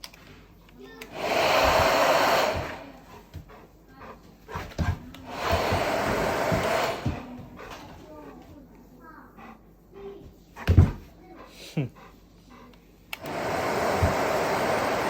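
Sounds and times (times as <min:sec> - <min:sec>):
hair dryer blowing: 0:01.0 - 0:03.1, 0:05.2 - 0:07.4, 0:13.1 - 0:15.0.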